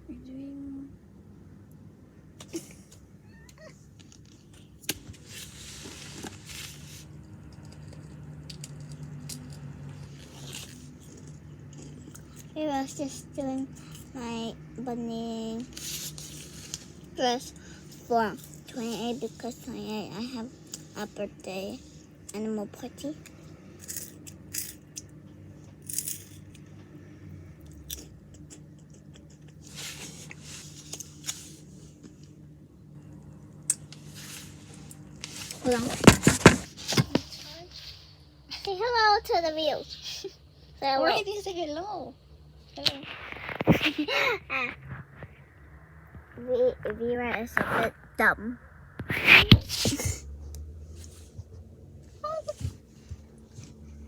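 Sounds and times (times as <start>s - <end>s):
faint low hum: 0.0s - 54.0s
crunching and crackling: 4.0s - 12.5s, 25.8s - 26.6s
rustling: 4.1s - 8.0s, 34.0s - 38.2s.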